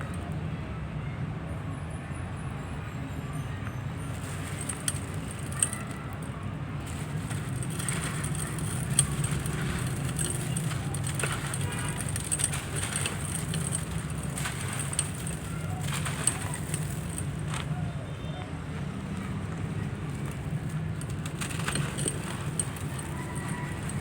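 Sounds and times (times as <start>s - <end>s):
dry material crumbling: 4.1s - 17.8s, 20.2s - 24.0s.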